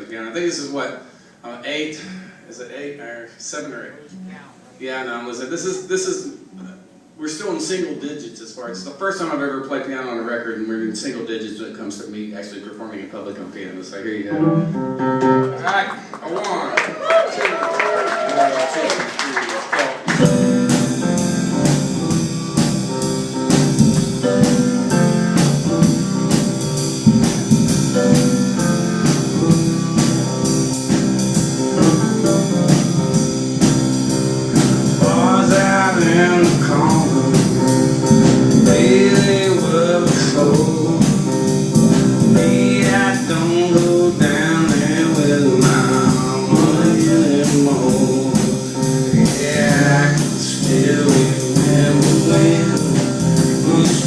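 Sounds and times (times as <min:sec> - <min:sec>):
piano playing: 0:14.2 - 0:15.8, 0:20.0 - 0:54.0
man singing: 0:34.8 - 0:41.4, 0:42.2 - 0:54.0.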